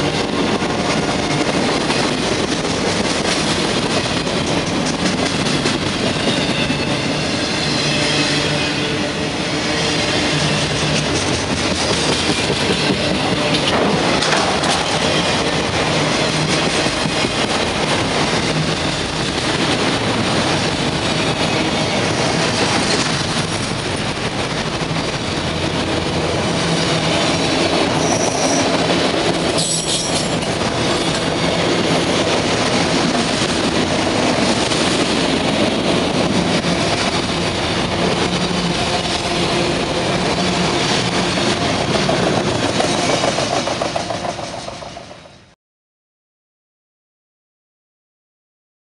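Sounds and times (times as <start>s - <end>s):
train wheels clattering on rail: 0.0s - 8.6s, 10.2s - 45.6s
high wheel squeals: 27.9s - 28.8s.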